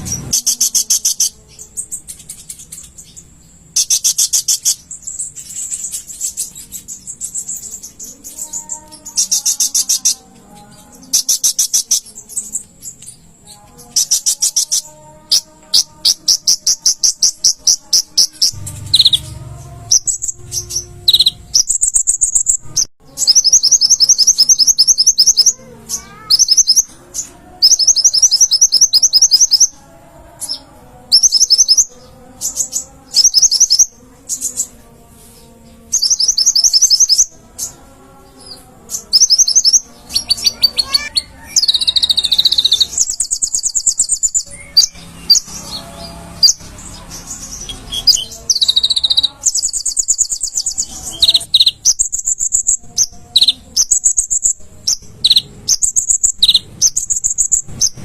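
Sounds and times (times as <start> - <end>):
bird singing high trills: 0.0 - 29.8, 30.4 - 34.8, 35.8 - 58.0
faint low rumble: 18.5 - 21.7.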